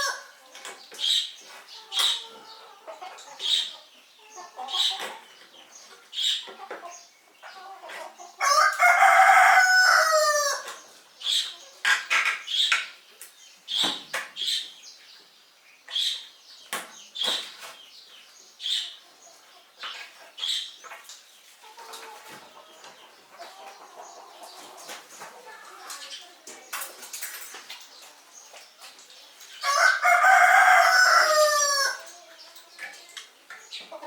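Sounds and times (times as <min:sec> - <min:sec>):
rooster crowing: 0:08.4 - 0:10.6, 0:29.6 - 0:32.0.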